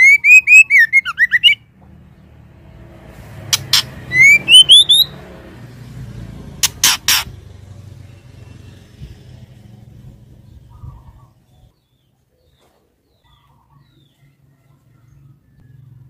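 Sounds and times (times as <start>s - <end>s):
bird chirps and whistled notes: 0.0s - 1.7s, 3.6s - 5.2s.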